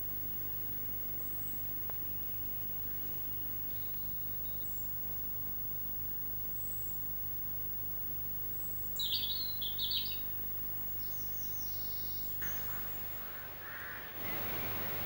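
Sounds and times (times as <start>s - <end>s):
outdoor hum and hiss: 0.0s - 15.0s
bird chirping: 9.0s - 10.4s.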